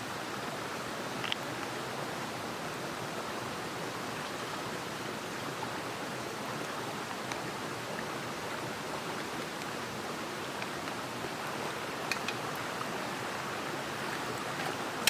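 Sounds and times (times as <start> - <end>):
stream rushing: 0.0 - 15.0
faint ticks: 1.2 - 1.7.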